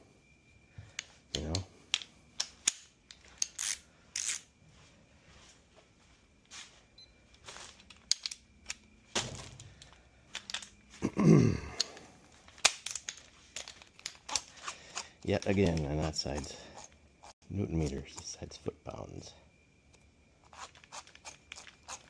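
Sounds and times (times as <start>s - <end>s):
metallic clicks of hand tools: 1.0s - 4.5s, 7.8s - 8.8s.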